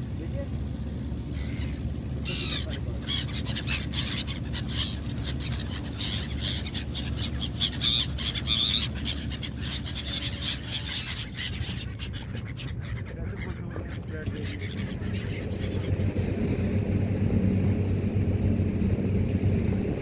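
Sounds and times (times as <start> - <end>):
boat engine rumble: 0.0 - 20.0
seagulls squawking: 1.2 - 16.3.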